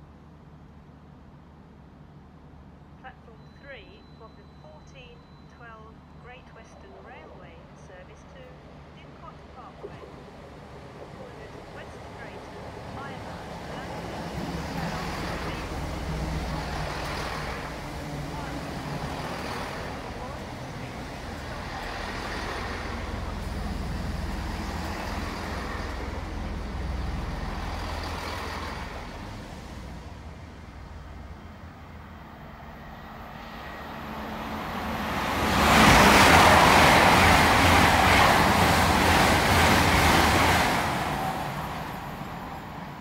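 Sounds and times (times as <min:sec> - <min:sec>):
train rumbling away: 0:00.0 - 0:43.0
train passing at speed: 0:04.7 - 0:43.0.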